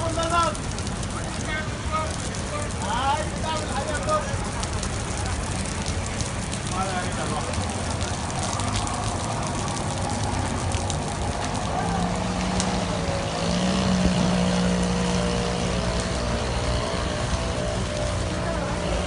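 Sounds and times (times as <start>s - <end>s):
constant noisy rush: 0.0s - 19.0s.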